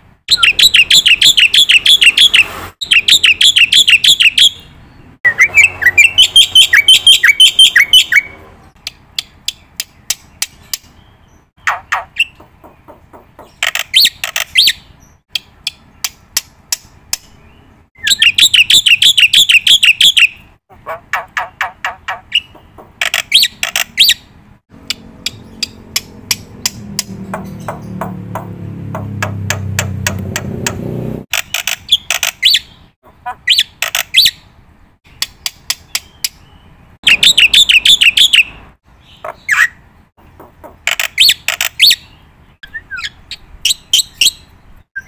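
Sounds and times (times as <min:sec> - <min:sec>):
bird chirping high notes: 0:00.3 - 0:08.8, 0:35.9 - 0:39.8.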